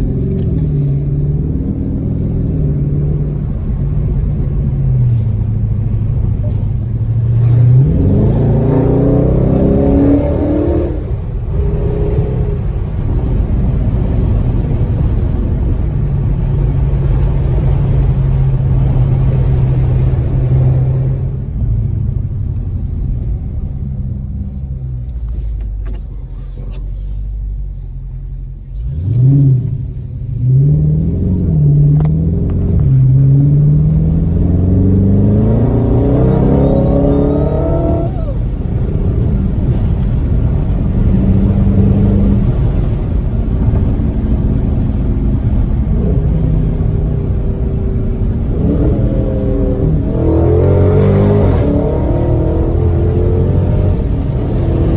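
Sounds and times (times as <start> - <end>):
car engine accelerating hard: 0.0 - 54.9.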